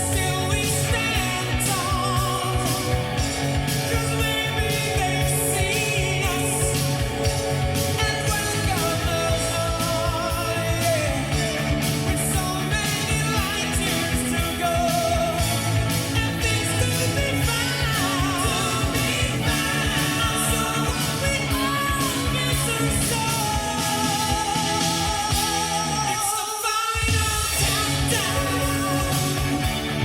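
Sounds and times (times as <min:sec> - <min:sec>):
rock song with singer: 0:00.0 - 0:30.0.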